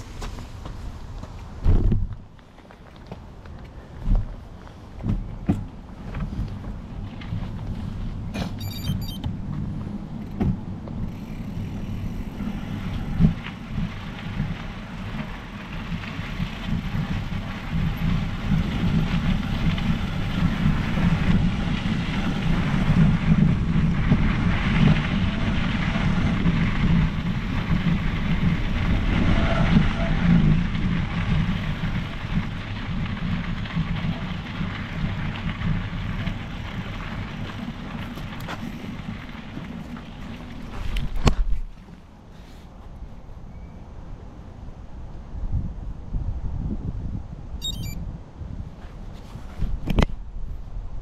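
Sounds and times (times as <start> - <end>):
wind on microphone: 0.0 - 2.3, 45.0 - 51.0
bike tyres rumbling on trail: 0.0 - 8.7, 9.3 - 42.6.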